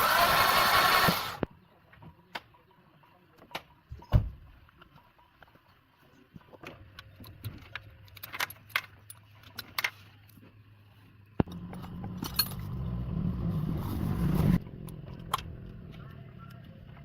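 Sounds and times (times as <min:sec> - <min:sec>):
engine starting and running: 0:00.0 - 0:01.5, 0:11.4 - 0:17.0.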